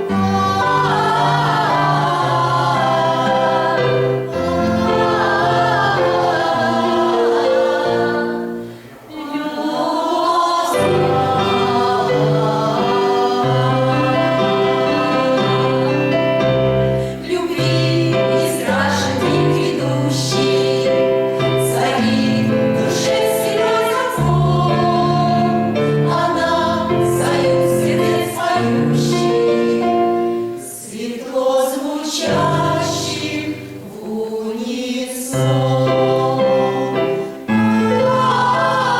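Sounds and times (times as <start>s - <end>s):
women's choir singing: 0.0s - 38.9s.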